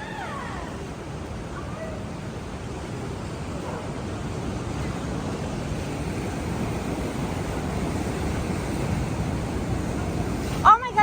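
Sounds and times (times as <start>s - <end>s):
ocean surf rushing: 0.0s - 11.0s
wind buffeting microphone: 0.6s - 11.0s.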